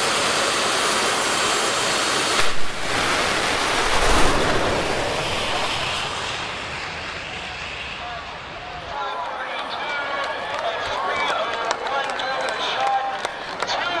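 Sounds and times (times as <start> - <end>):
jet turbine roaring: 0.0 - 11.0
sharp burst: 2.4 - 8.0.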